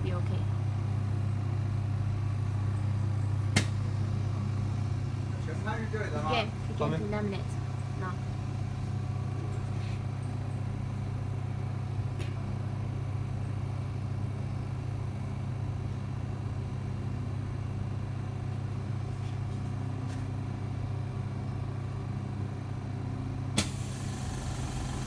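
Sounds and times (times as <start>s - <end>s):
laminating machine humming: 0.0s - 25.0s.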